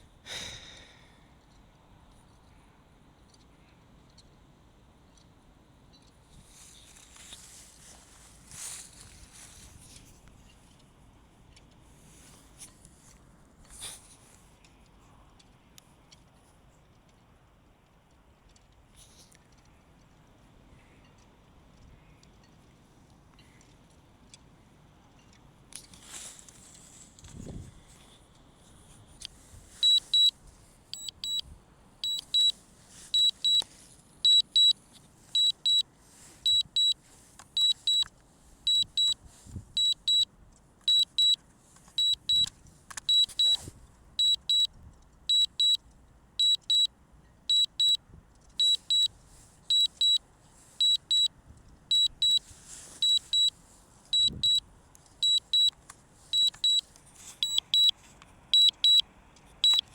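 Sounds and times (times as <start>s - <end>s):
high-pitched double beeps: 29.8s - 30.3s, 30.9s - 31.4s, 32.0s - 32.5s, 33.1s - 33.6s, 34.3s - 34.7s, 35.4s - 35.8s, 36.5s - 37.0s, 37.6s - 38.1s, 38.7s - 39.2s, 39.8s - 40.2s, 42.0s - 42.5s, 43.1s - 43.6s, 44.2s - 44.7s, 47.5s - 48.0s, 48.6s - 49.1s, 49.7s - 50.2s, 50.8s - 51.3s, 51.9s - 52.4s, 53.0s - 53.5s, 54.2s - 54.6s, 55.2s - 55.7s, 56.4s - 56.8s, 57.4s - 57.9s, 58.6s - 59.0s, 59.6s - 59.9s.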